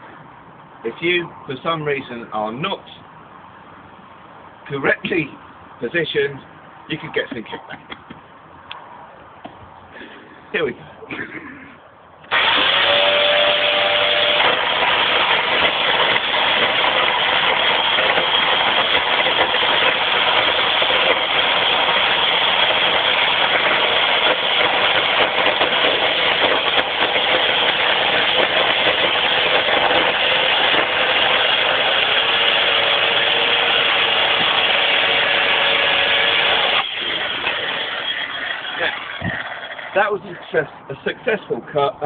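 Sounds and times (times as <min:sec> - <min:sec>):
chainsaw cutting log: 0:12.3 - 0:40.4.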